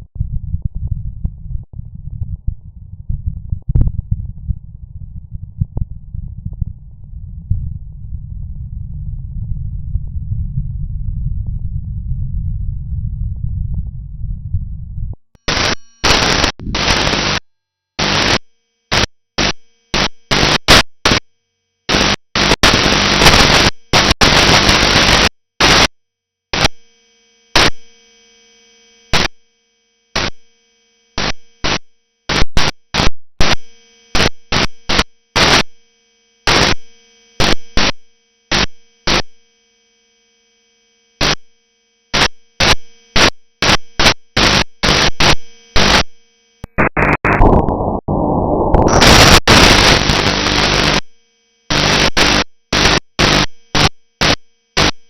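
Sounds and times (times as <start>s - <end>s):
faint steady radio tones: 15.4s - 17.4s, 18.0s - 21.2s, 42.2s - 51.1s, 51.7s - 55.0s
radio static hiss: 15.4s - 17.4s, 18.0s - 21.2s, 21.9s - 25.9s, 26.6s - 26.9s, 27.5s - 27.9s, 29.1s - 29.4s, 30.2s - 30.4s, 31.2s - 35.8s, 36.4s - 39.3s, 41.2s - 41.4s, 42.2s - 55.0s.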